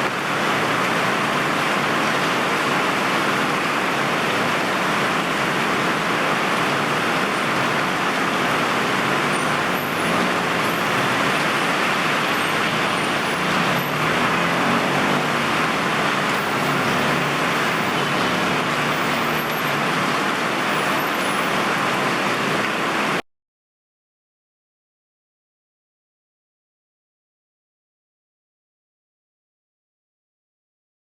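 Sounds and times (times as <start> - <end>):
heavy rain pouring: 0.0 - 23.2
tyres hissing on wet road: 0.0 - 23.2
faint vehicle engine: 4.4 - 22.8.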